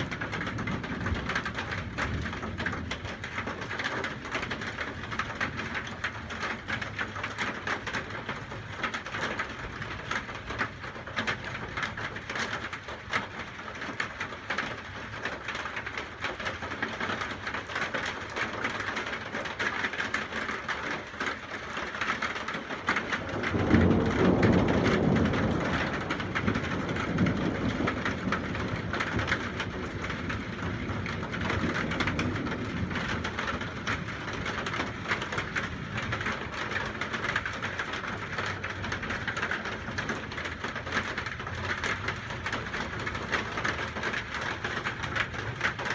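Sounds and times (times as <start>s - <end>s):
thunder rumbling: 0.0s - 12.7s, 22.8s - 45.9s
rain pattering: 0.0s - 45.9s.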